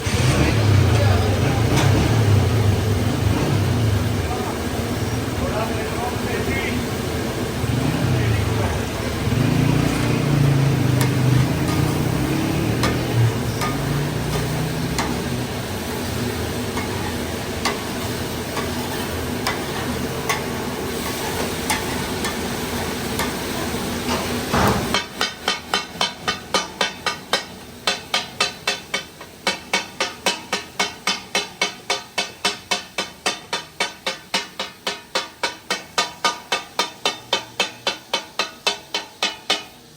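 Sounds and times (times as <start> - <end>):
frying sizzle: 0.0 - 39.9
metal utensils clinking: 9.8 - 39.9.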